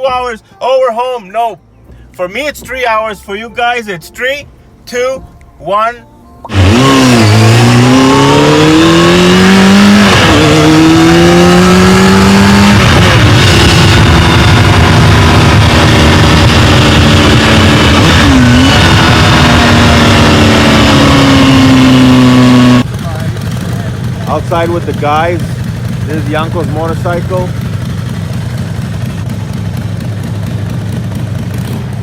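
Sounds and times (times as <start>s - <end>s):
engine accelerating through gears: 6.4s - 32.0s.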